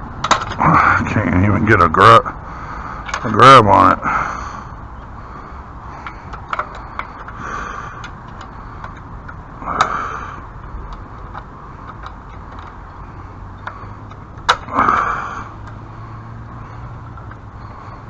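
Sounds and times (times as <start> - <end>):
hand tools clicking and scraping: 0.2 - 0.8, 3.0 - 3.4, 5.9 - 18.0.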